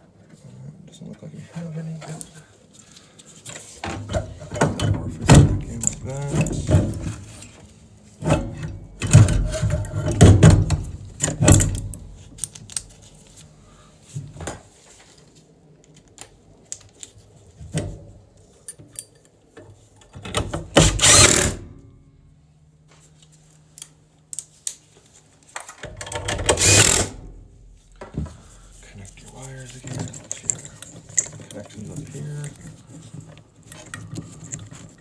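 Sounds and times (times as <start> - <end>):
metal parts clicking and knocking: 20.0 - 21.6, 25.6 - 27.2, 29.6 - 35.0.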